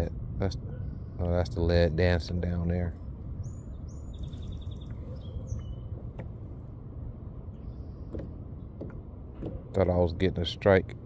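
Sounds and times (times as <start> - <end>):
low steady rumble: 0.0 - 11.0
birds chirping and trilling: 2.9 - 6.6, 7.4 - 9.0.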